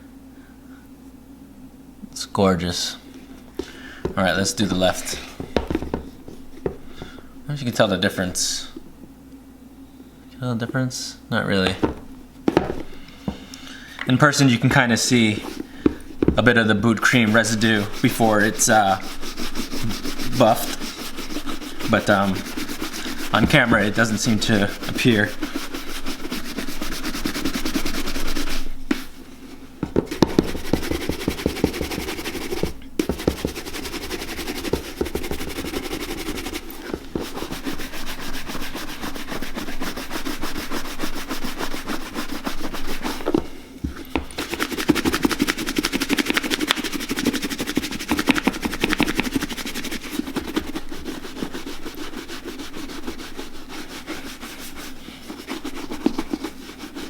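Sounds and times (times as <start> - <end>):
buffing strokes on leather boot: 14.4 - 57.0.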